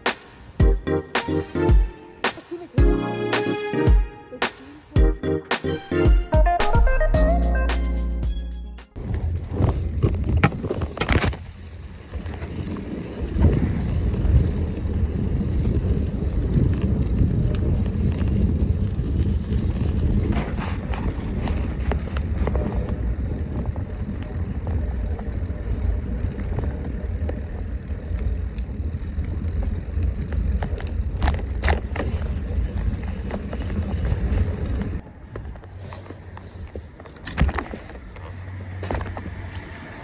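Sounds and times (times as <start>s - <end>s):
wind and road noise: 0.0s - 0.6s, 8.9s - 40.0s.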